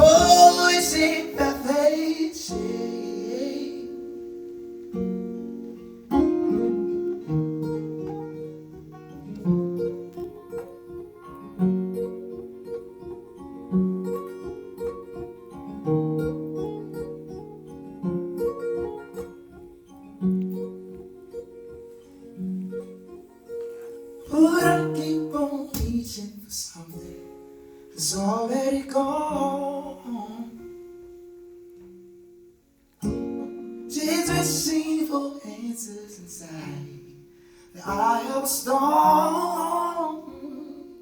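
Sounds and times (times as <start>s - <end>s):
acoustic guitar picked chords: 0.0s - 41.0s.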